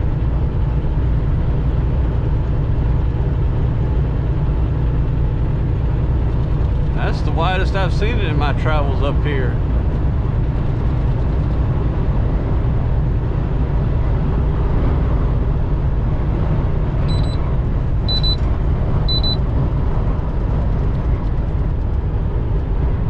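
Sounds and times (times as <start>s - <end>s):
truck engine rumble and road noise: 0.0s - 23.0s
short high-pitched beeps: 17.1s - 17.4s, 18.1s - 18.4s, 19.1s - 19.4s.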